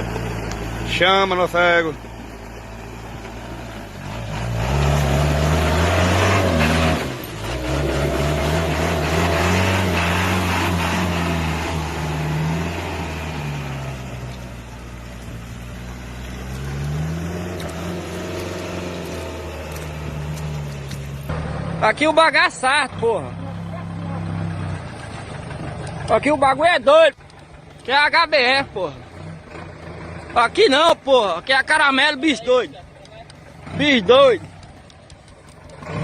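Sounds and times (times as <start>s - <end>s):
off-road vehicle engine revving: 0.0s - 36.0s.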